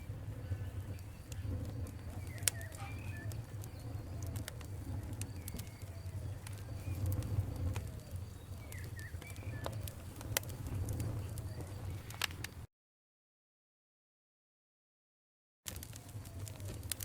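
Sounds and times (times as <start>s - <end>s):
wood fire crackling: 0.0s - 12.7s, 15.7s - 17.0s
faint bird calls: 0.3s - 4.5s.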